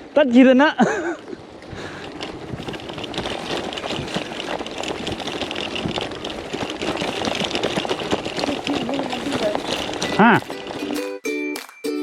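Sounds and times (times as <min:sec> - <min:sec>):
bicycle riding rush: 0:00.0 - 0:11.7
fine crackling: 0:01.5 - 0:11.2
wind on microphone: 0:01.6 - 0:10.1.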